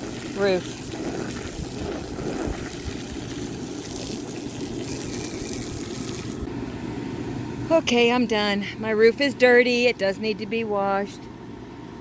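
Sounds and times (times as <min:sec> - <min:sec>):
air conditioner fan rushing: 0:00.0 - 0:09.0.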